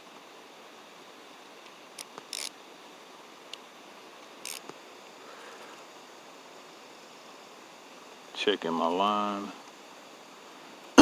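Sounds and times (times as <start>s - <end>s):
steady faint hiss: 0.0s - 11.0s
fishing reel click: 2.0s - 2.5s, 4.4s - 4.7s
reel raspy bursts: 2.0s - 2.5s, 4.4s - 5.8s.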